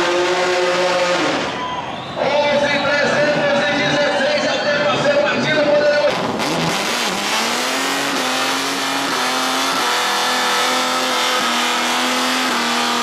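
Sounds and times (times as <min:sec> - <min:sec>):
car engine revving high: 0:00.0 - 0:01.6, 0:05.0 - 0:13.0.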